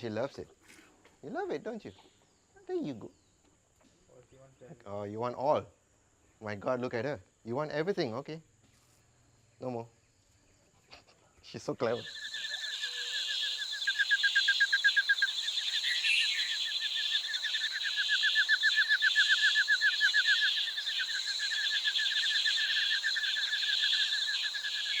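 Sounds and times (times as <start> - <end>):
rapid pulsed animal calls: 11.8 - 25.0.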